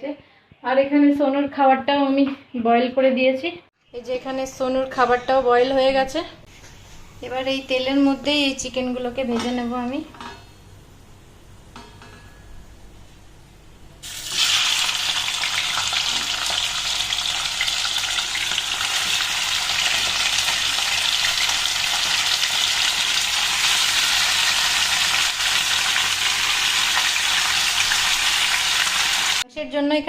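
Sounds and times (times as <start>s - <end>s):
chicken sizzling in hot oil: 14.0s - 29.4s.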